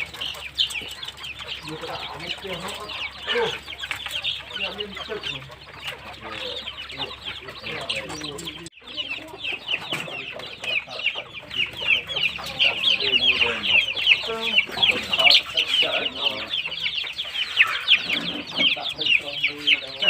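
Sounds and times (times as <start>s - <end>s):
chicks peeping: 0.0s - 20.0s
low clucking calls: 0.0s - 20.0s.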